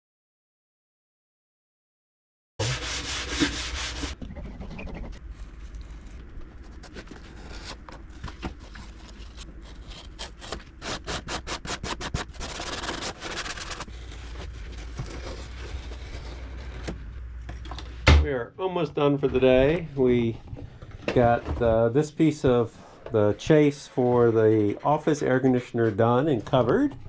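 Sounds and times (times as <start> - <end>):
hand sanding wood: 2.6 - 4.2, 10.1 - 13.8
low steady hum: 2.6 - 27.0.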